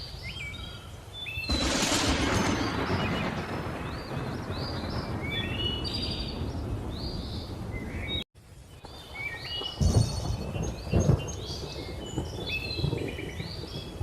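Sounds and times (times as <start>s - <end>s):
birds chirping: 0.0s - 14.0s
thunder rumble: 1.5s - 8.2s, 9.8s - 14.0s.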